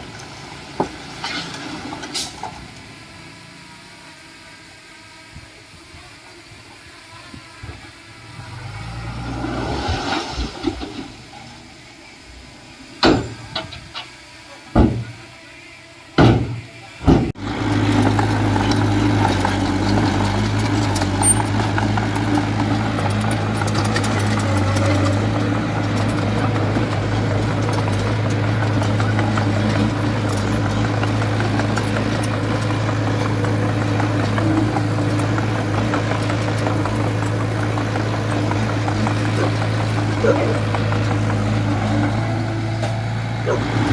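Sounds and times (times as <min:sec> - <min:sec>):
heavy machine diesel engine: 0:00.0 - 0:43.9
sharp knocks: 0:14.8 - 0:15.2, 0:16.2 - 0:17.4.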